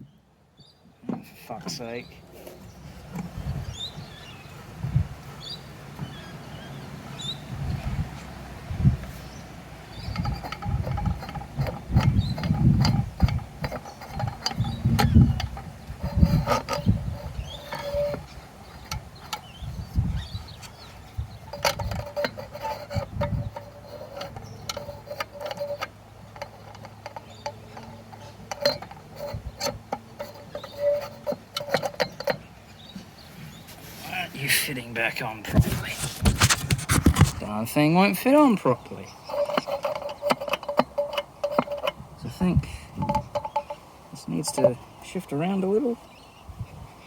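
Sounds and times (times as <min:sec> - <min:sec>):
metal parts clanking: 0:10.0 - 0:19.6, 0:20.2 - 0:32.5, 0:38.2 - 0:45.2.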